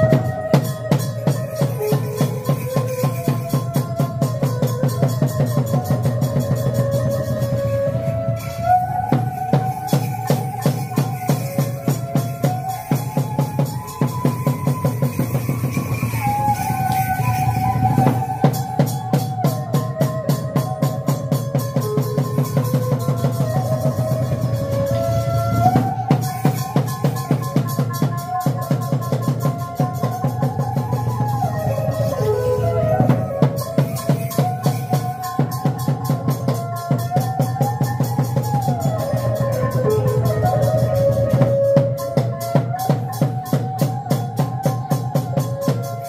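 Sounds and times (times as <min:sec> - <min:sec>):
drums in quick rhythm: 0:00.0 - 0:46.0
sliding wavering melody: 0:00.0 - 0:46.0
gliding held melody: 0:06.0 - 0:18.9.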